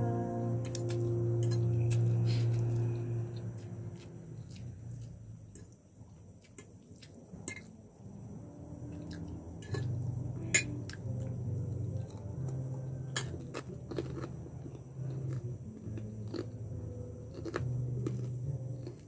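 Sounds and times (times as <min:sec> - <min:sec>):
low hum: 0:00.0 - 0:05.7, 0:08.0 - 0:19.0
fried chicken crunching: 0:13.2 - 0:16.6, 0:17.2 - 0:19.0.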